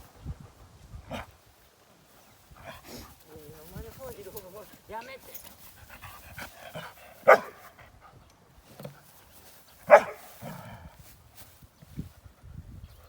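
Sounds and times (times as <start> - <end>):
dog barking: 7.2 - 7.8, 9.9 - 10.3.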